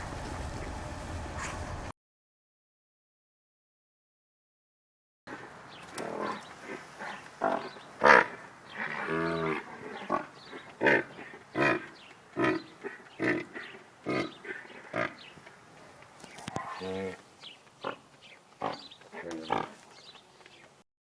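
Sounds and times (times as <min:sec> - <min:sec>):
animal calling: 0:05.3 - 0:20.7.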